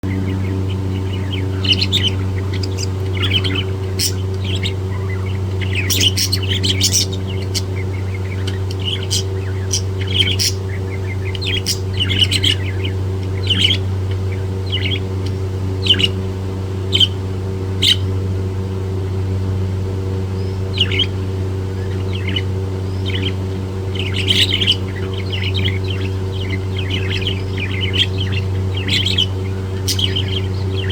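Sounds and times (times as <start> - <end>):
low electrical hum: 0.0 - 30.9
budgerigar chirping and squawking: 0.1 - 15.1, 17.8 - 18.2, 21.8 - 30.9.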